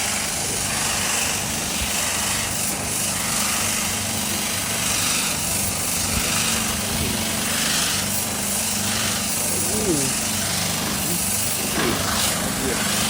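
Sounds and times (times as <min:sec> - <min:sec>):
loud pulsing hiss: 0:00.0 - 0:13.0
machine humming: 0:00.0 - 0:13.0.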